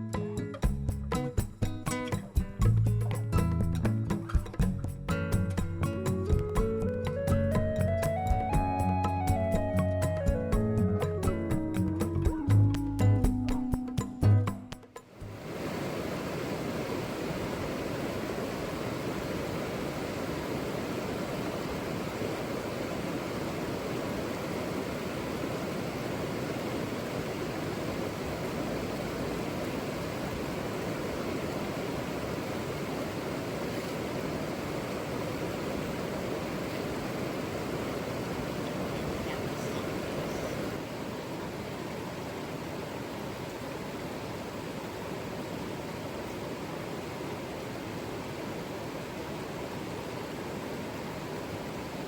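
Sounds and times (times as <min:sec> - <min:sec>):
river water rushing: 0:15.0 - 0:52.0.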